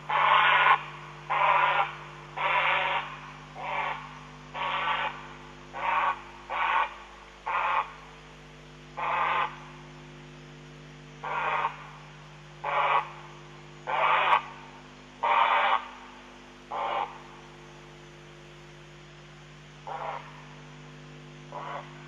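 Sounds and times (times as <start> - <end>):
steady electrical hum: 0.0 - 22.0
night bird harsh calls: 0.1 - 8.1, 9.0 - 9.7, 11.2 - 12.0, 12.6 - 14.6, 15.2 - 18.0, 19.8 - 20.5, 21.5 - 22.0.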